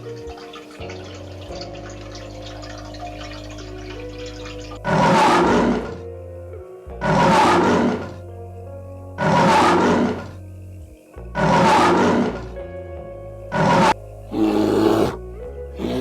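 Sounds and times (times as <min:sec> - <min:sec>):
background music: 0:00.0 - 0:16.0
big cat roaring: 0:04.8 - 0:06.1, 0:07.0 - 0:08.2, 0:09.2 - 0:10.4, 0:11.4 - 0:12.6, 0:13.5 - 0:16.0.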